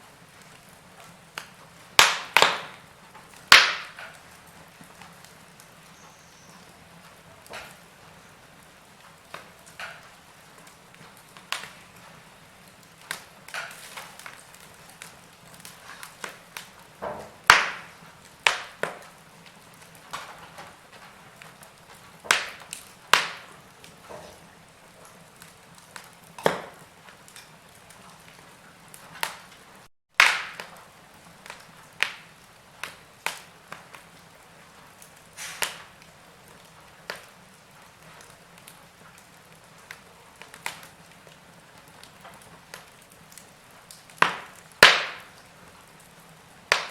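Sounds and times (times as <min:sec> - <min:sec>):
logs crackling in fireplace: 0:00.0 - 0:46.9
faint hiss: 0:35.3 - 0:36.0.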